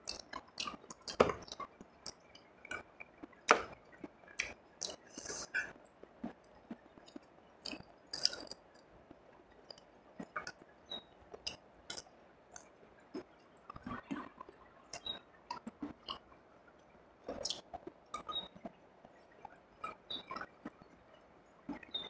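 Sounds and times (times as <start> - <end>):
close chewing with wet smacks: 0.0 - 16.4, 17.2 - 18.8
mouth clicks: 0.1 - 2.8, 4.4 - 5.7, 7.1 - 8.6, 17.3 - 18.5.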